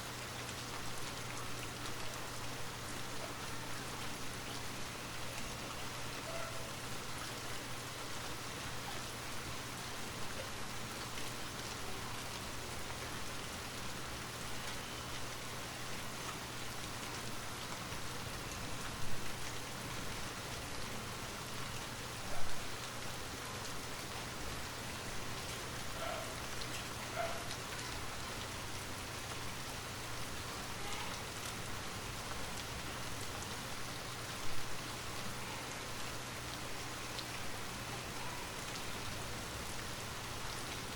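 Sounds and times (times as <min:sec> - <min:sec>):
steady rain falling: 0:00.0 - 0:40.9
water drips: 0:00.0 - 0:40.9.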